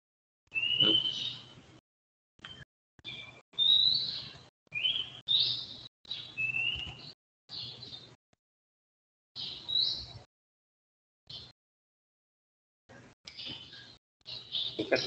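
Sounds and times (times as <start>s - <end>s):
bird whistled calls: 0.5s - 1.4s, 3.2s - 4.2s, 6.2s - 7.0s.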